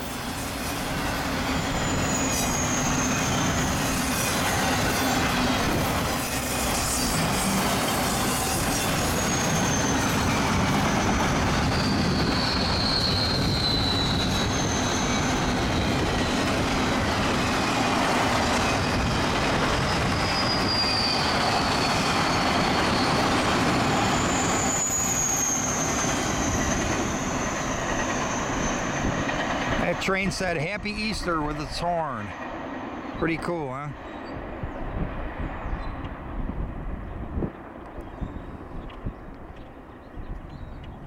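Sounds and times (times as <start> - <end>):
wheel flange squeals: 0.0 - 16.5, 18.4 - 29.6
train rumble and wheel clatter: 0.0 - 41.0.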